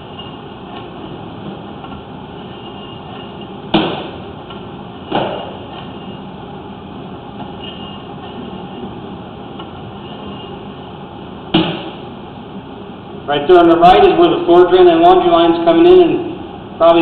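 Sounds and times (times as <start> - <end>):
sharp knocks: 3.7 - 4.2, 5.1 - 5.6, 11.5 - 12.0.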